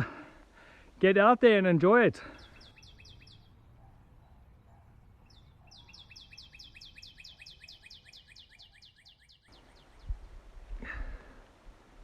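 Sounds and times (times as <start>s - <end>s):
songbird trilling: 2.4s - 3.9s, 5.2s - 10.2s.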